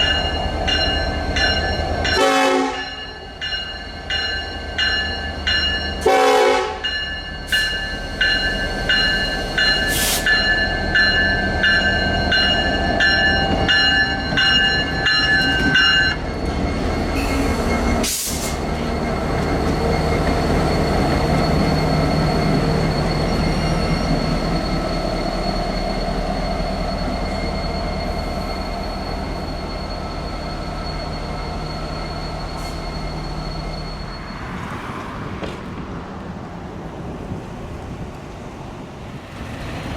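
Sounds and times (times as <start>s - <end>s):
crossing bell ringing: 0.0s - 18.0s, 18.6s - 35.0s
train rumble: 0.0s - 39.9s
train horn blast: 2.1s - 3.0s, 6.0s - 6.8s
wheel squeal: 7.6s - 35.1s.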